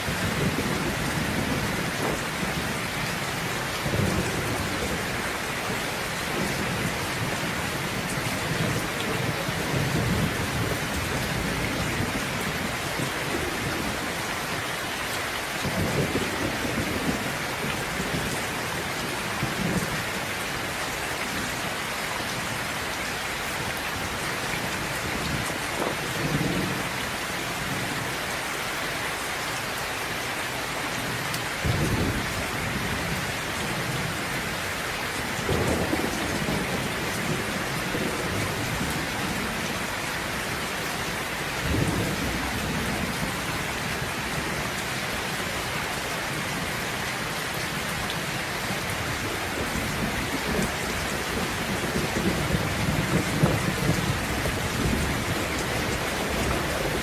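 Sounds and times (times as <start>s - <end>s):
heavy rain hissing: 0.0s - 57.0s
thunder rumbling: 31.0s - 34.4s, 35.3s - 40.4s, 41.6s - 44.7s, 48.8s - 57.0s.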